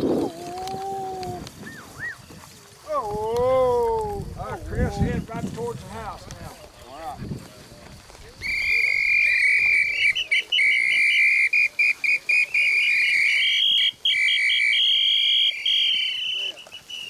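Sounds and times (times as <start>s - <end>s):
dog whistle blasts and pips: 8.4s - 17.0s.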